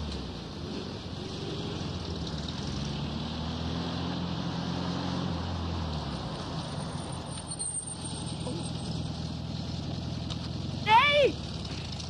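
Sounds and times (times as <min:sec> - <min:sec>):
car engine running: 0:07.9 - 0:12.0.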